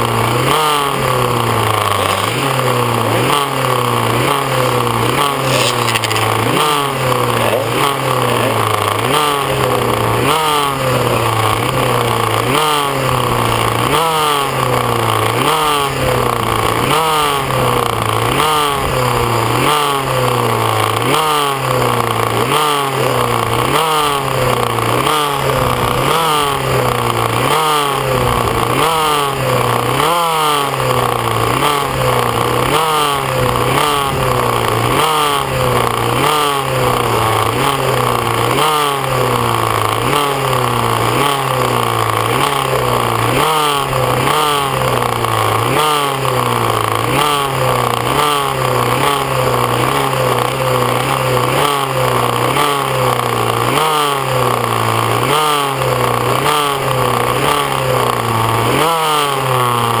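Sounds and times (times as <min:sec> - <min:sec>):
two-stroke motorcycle engines revving: 0:00.0 - 1:00.0.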